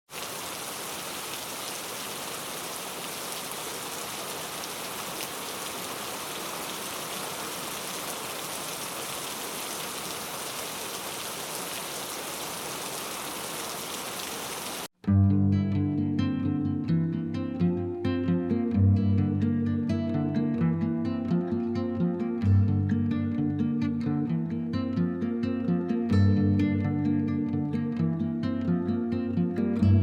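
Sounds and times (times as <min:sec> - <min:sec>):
steady rainfall: 0:00.1 - 0:14.9.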